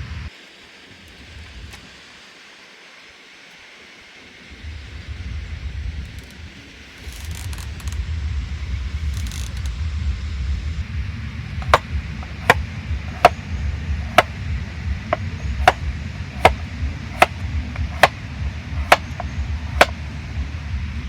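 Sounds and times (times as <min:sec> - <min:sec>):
steady low rumble: 0:04.5 - 0:06.8, 0:07.4 - 0:21.0
knife chopping on cutting board: 0:11.6 - 0:13.4, 0:14.0 - 0:14.3, 0:16.4 - 0:18.2, 0:18.8 - 0:20.0.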